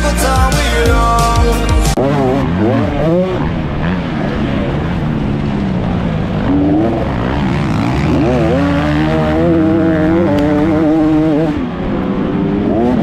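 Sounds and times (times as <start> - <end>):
vehicle engine revving: 1.9 - 13.0.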